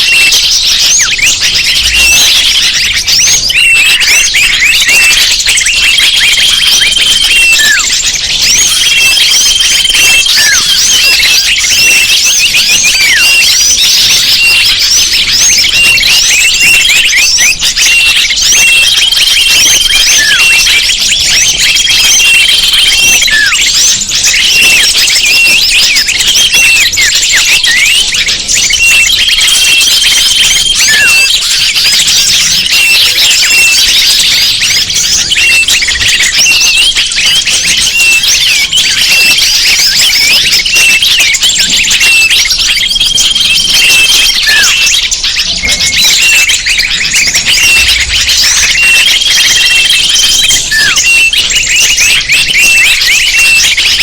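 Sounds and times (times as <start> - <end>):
many small birds chirping: 0.0 - 54.0
whistled note: 45.5 - 53.6.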